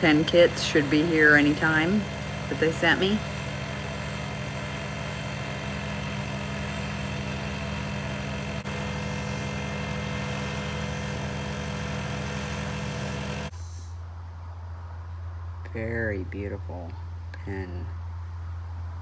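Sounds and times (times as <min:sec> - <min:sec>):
wood lathe motor running: 0:00.0 - 0:13.5.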